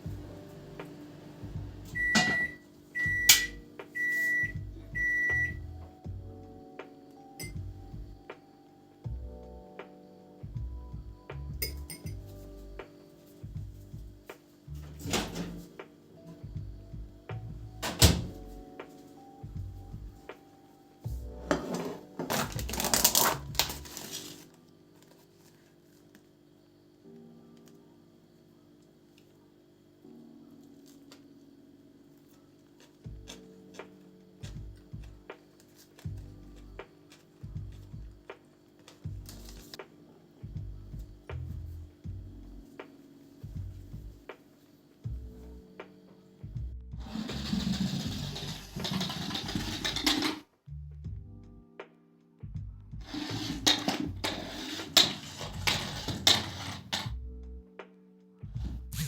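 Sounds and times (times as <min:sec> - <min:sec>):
soft background music: 0:00.0 - 0:59.0
microwave oven beeping: 0:01.8 - 0:05.8
objects clattering and rustling: 0:21.4 - 0:25.7, 0:47.0 - 0:50.5, 0:53.0 - 0:57.2.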